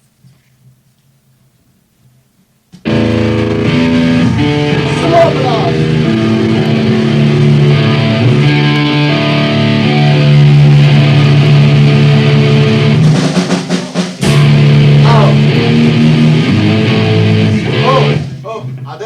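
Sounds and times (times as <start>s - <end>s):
guitar playing sustained notes: 2.8s - 13.3s, 14.2s - 19.0s.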